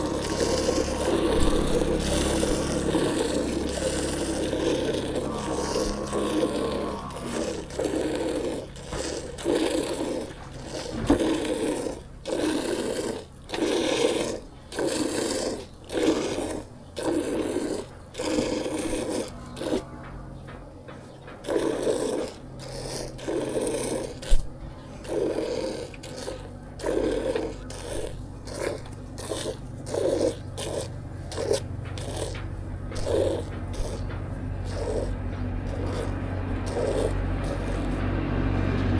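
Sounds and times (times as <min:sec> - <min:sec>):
milk squirting into a container: 0:00.0 - 0:19.9, 0:21.4 - 0:38.9.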